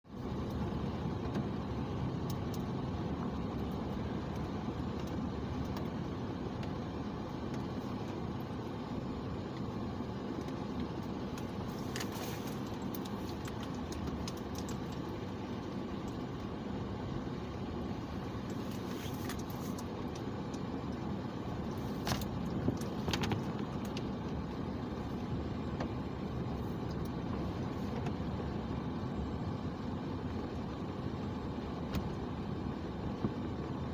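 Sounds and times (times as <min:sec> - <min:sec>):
car engine and tyre noise: 0:00.0 - 0:33.9.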